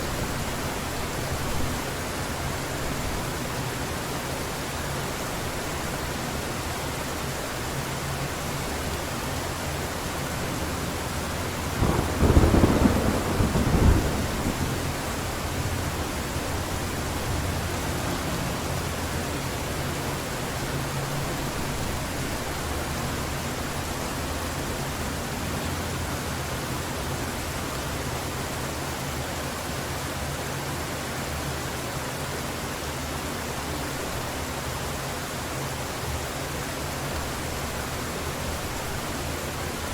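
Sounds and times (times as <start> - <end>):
heavy rain falling: 0.0 - 39.9
thunder clap and rumble: 11.7 - 16.0.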